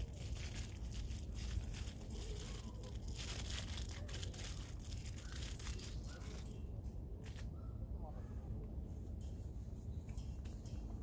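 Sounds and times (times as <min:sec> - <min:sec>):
crinkling and rustling: 0:00.0 - 0:07.5.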